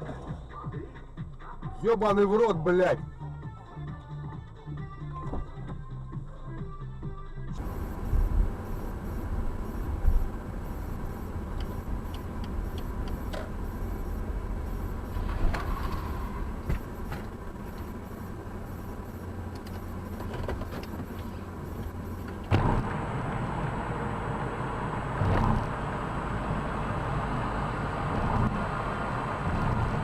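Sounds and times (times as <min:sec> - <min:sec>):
car engine and road rumble: 0:00.0 - 0:30.0
knocks and clicks: 0:11.0 - 0:15.7.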